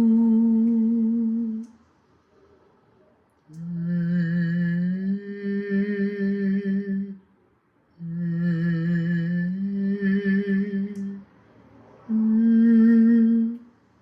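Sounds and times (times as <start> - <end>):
man humming a slow melody: 0.0 - 1.7, 3.5 - 7.2, 8.0 - 11.2.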